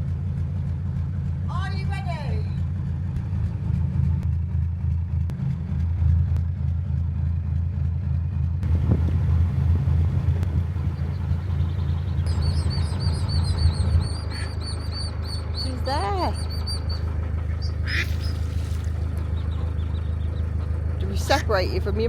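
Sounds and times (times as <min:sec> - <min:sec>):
diesel engine rumbling: 0:00.0 - 0:22.0
high-pitched peeping: 0:10.5 - 0:21.8.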